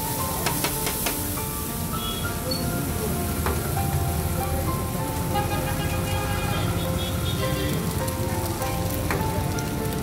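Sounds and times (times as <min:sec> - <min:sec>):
background music: 0:00.0 - 0:10.0
food sizzling on a griddle: 0:00.0 - 0:10.0.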